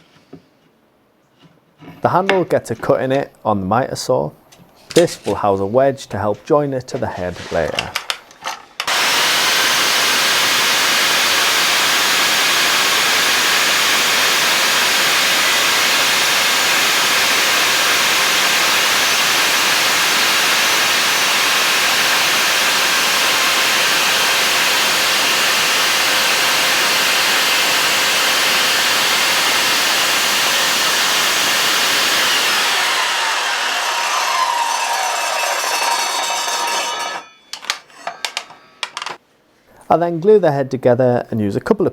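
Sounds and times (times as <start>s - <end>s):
miter saw motor whining: 8.8s - 38.6s.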